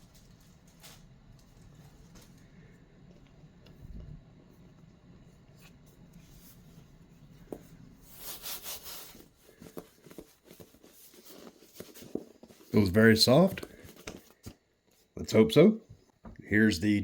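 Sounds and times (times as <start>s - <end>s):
packaging rustling: 8.2s - 14.6s.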